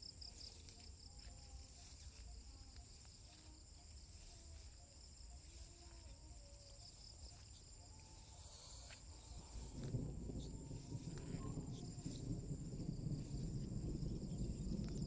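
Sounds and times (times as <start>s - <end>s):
crickets chirping: 0.0s - 15.0s
low background rumble: 6.2s - 15.0s.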